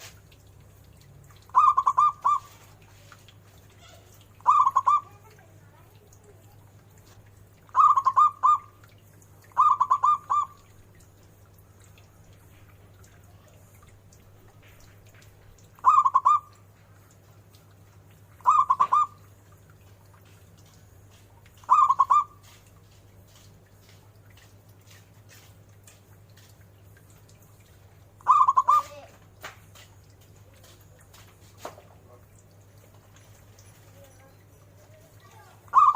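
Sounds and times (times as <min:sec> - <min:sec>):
dove cooing: 0:01.5 - 0:02.8, 0:03.8 - 0:05.3, 0:07.7 - 0:08.8, 0:09.4 - 0:10.7, 0:15.8 - 0:16.6, 0:18.4 - 0:19.3, 0:21.6 - 0:22.3, 0:28.2 - 0:29.1, 0:35.3 - 0:35.9.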